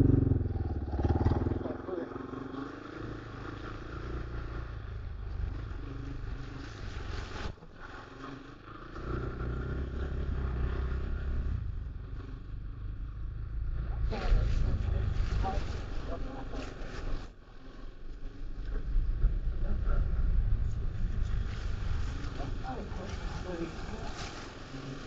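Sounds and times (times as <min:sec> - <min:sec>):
dirt bike engine revving: 0:00.0 - 0:07.4, 0:08.6 - 0:17.3.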